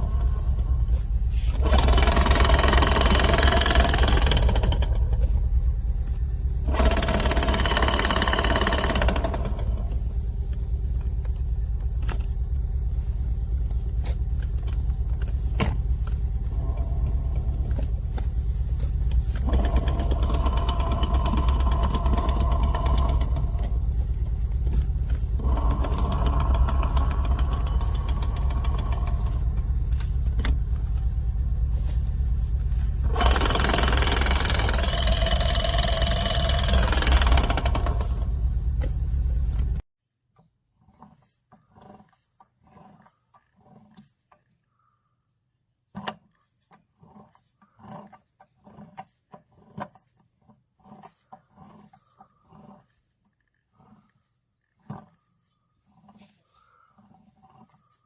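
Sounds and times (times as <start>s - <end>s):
knocking and vibration: 0.0s - 39.8s
drivetrain low rumble: 0.0s - 39.9s.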